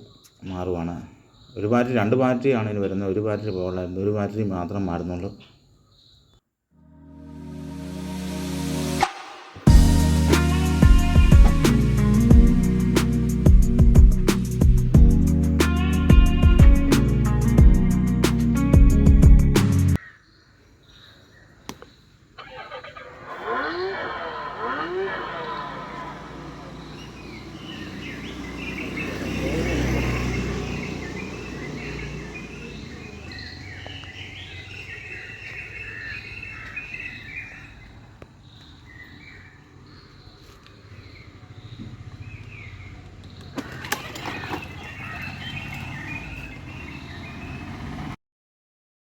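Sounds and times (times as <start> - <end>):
small birds chirping: 0.0 - 6.4, 9.6 - 18.9, 20.0 - 48.2
outdoor background noise: 0.0 - 6.6, 20.0 - 48.2.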